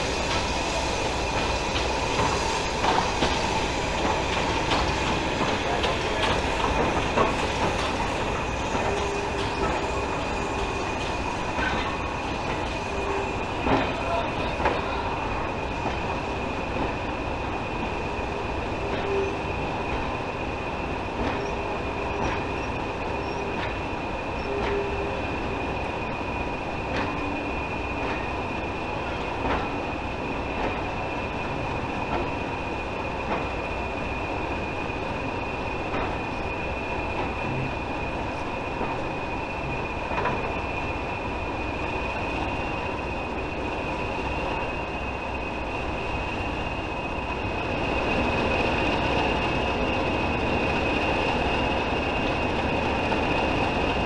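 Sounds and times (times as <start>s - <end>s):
train wheels clicking over rail joints: 0.0s - 17.9s, 18.6s - 25.2s, 26.8s - 44.9s
train rumble: 0.0s - 54.0s.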